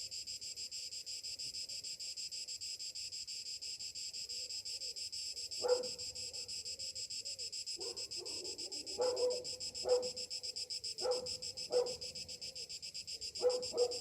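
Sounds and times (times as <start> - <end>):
cicadas droning: 0.0 - 14.0
dog barking: 5.6 - 6.5, 7.8 - 10.2, 11.0 - 12.1, 13.4 - 14.0.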